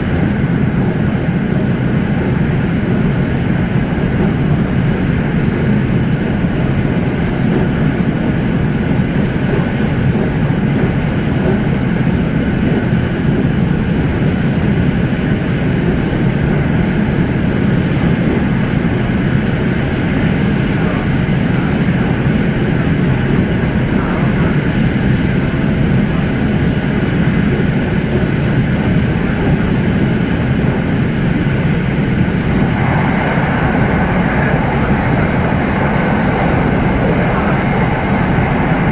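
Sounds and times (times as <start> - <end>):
electric train running at speed: 0.0 - 38.9
hiss and rushing: 31.9 - 38.9.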